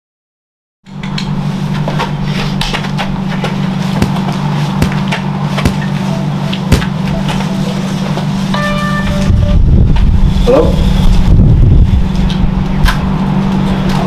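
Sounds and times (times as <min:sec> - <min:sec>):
vehicle engine rumbling: 0:00.9 - 0:14.0
sharp knocks: 0:01.2 - 0:09.4.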